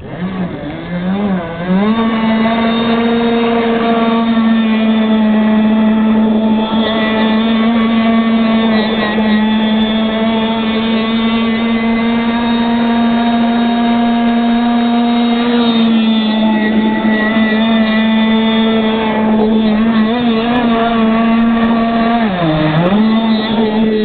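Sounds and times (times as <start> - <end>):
two-stroke engine at full throttle: 0.0 - 24.0.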